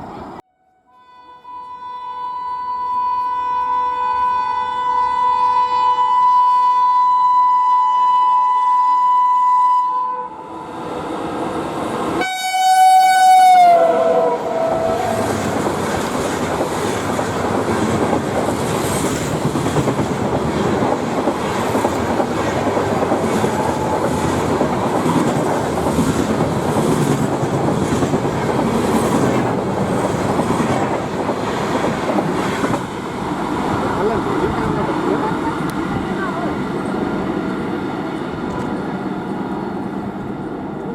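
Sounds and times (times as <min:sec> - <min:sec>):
train horn: 0:00.5 - 0:10.7, 0:12.2 - 0:15.6
train rumbling past: 0:10.3 - 0:40.9
wheels clacking over rail joints: 0:14.5 - 0:40.6.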